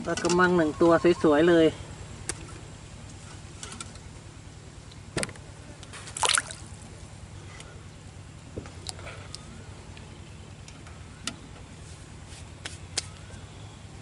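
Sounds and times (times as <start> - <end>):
light water sounds: 5.8 - 6.9
short splash: 6.1 - 6.8.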